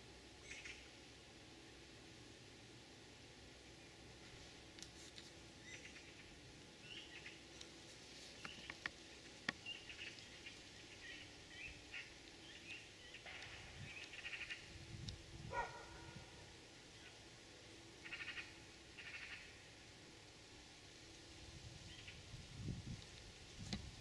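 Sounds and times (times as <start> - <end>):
small birds chirping: 0.4 - 1.0, 4.8 - 17.3, 17.9 - 19.8.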